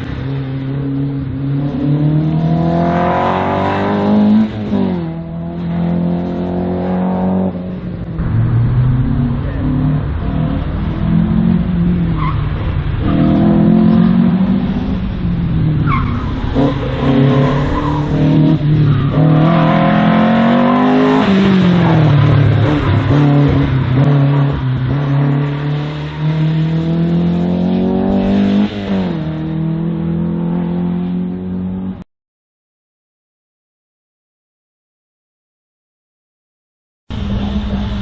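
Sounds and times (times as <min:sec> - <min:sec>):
race car engine revving: 0:00.0 - 0:32.0, 0:37.1 - 0:38.0
tyres squealing and skidding: 0:11.9 - 0:26.9.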